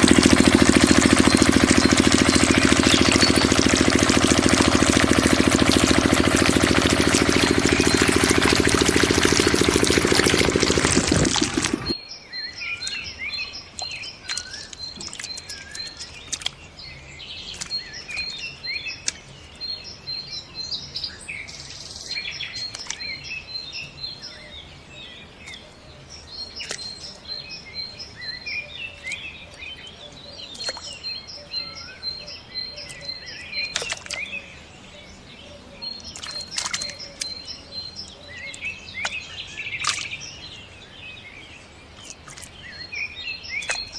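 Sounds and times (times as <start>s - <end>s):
engine noise: 0.0s - 12.0s
rush of pumped water: 0.0s - 12.0s, 36.0s - 37.4s
small birds chirping: 0.0s - 43.9s.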